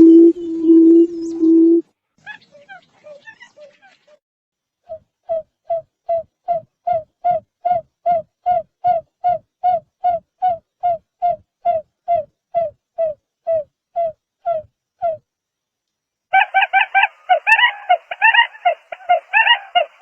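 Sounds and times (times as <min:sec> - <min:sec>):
bird low hooting calls: 0:16.4 - 0:20.0.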